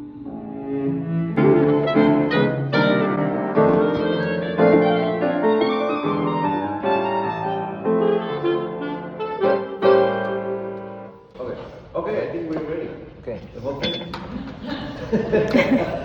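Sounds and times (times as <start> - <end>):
bowed strings: 0.0 - 9.0
piano playing quick notes: 1.4 - 11.3.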